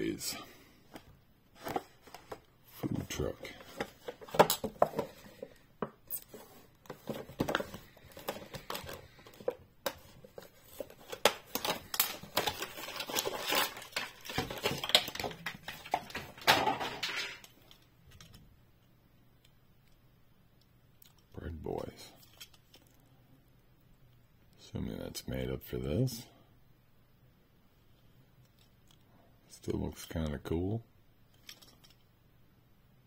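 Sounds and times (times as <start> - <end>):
plastic packaging pulled open: 10.6 - 16.5.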